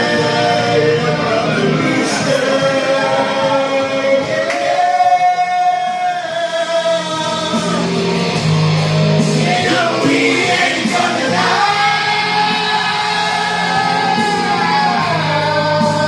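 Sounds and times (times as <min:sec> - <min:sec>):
person singing karaoke: 0:00.0 - 0:16.0
rock backing track: 0:00.0 - 0:16.0.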